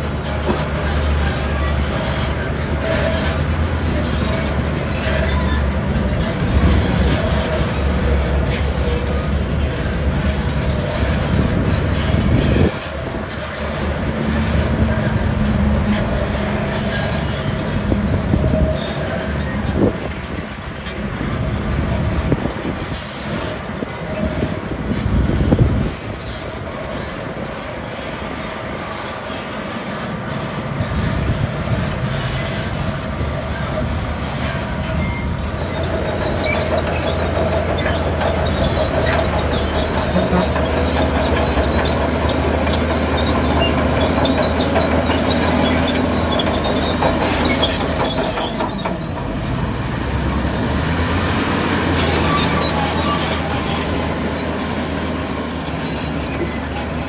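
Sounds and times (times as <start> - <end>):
rumbling clatter: 0.0 - 29.6, 30.4 - 57.0
bulldozer diesel engine: 0.0 - 57.0
steel tracks squealing and clanking: 0.0 - 57.0.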